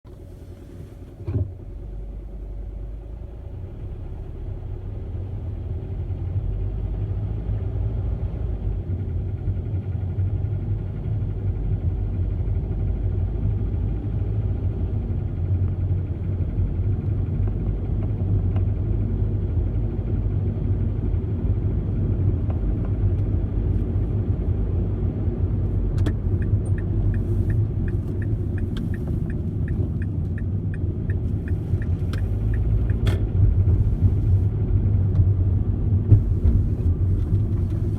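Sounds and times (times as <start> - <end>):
car engine drone: 0.1 - 37.9
light ticks: 26.0 - 33.2.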